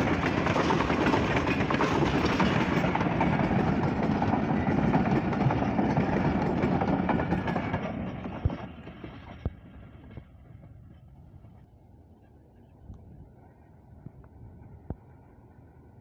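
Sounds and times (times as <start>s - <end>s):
train rumbling past: 0.0s - 11.7s.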